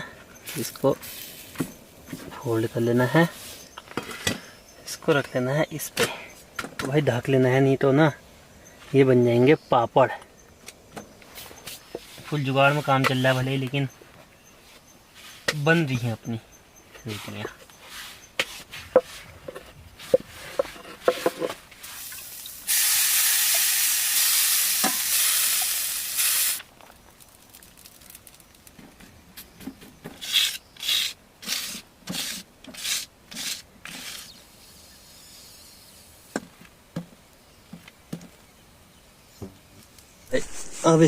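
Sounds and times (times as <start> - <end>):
food sizzling in a hot pan: 21.9 - 26.6.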